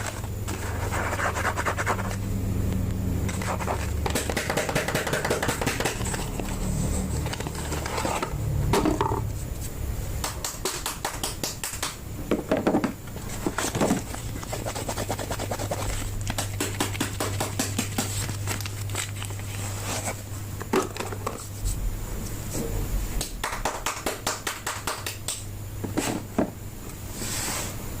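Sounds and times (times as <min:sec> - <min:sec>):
packaging crinkling: 0:17.8 - 0:19.8.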